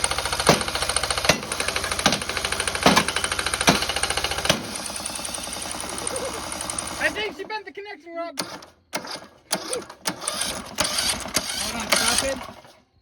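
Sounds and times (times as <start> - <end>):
loud engine knocking: 0.0 - 7.2
lawn mower engine running: 0.0 - 7.7, 8.4 - 13.0.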